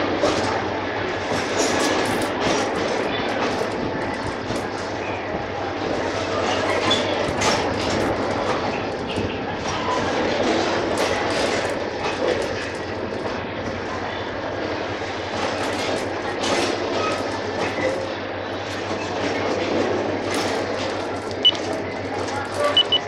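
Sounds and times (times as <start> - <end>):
freight train wheels on rails: 0.0 - 23.0
short electronic beep: 22.6 - 23.0.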